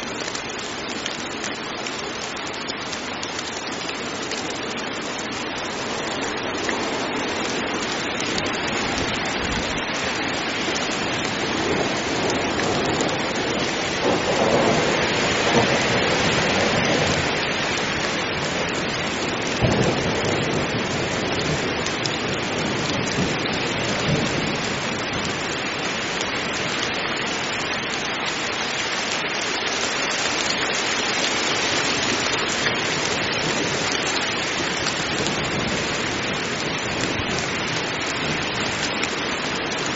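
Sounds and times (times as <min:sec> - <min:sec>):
heavy rain falling: 0:00.0 - 0:39.9
thunder rumbling: 0:06.7 - 0:25.6.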